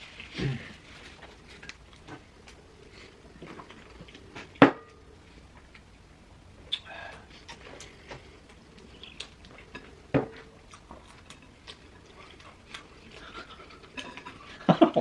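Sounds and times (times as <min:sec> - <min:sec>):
chewing: 0:00.2 - 0:04.6, 0:06.7 - 0:14.8.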